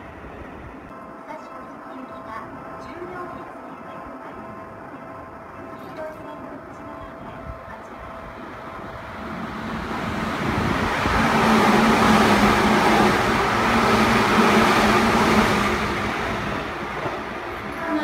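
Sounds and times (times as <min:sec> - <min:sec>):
steady train hum: 0:00.0 - 0:18.0
train wheels rumbling on rails: 0:05.6 - 0:18.0.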